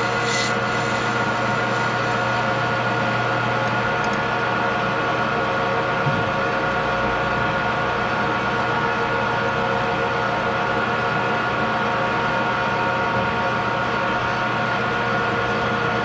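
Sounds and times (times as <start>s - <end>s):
machine tool humming: 0.0s - 4.0s.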